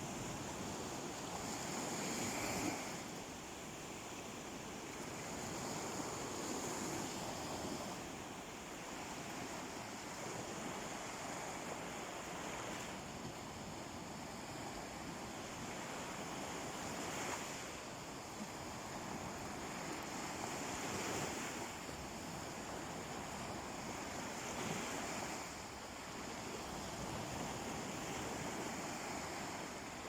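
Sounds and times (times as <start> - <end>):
calm sea waves on beach: 0.0 - 30.0.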